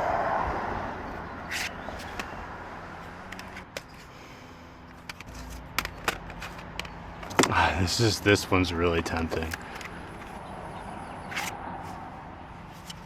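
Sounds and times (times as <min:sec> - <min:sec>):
plastic cases rustling: 0:01.5 - 0:02.4, 0:04.8 - 0:07.6, 0:09.0 - 0:10.4
plastic cd cases clicking: 0:01.5 - 0:02.4, 0:03.0 - 0:04.1, 0:04.9 - 0:07.6, 0:09.1 - 0:10.4, 0:11.3 - 0:12.0.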